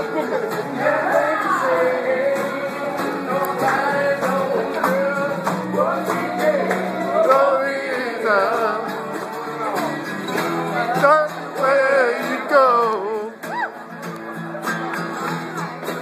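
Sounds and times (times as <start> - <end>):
person singing: 0.0 - 9.0, 10.8 - 13.5
string band playing live: 0.0 - 16.0.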